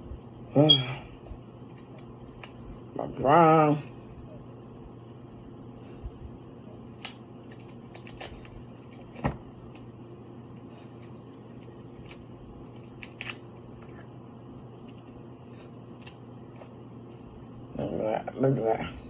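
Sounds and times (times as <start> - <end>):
steady low hum: 0.0 - 19.0
shellfish cracking and crunching: 1.7 - 2.8, 6.8 - 14.2, 14.8 - 16.8.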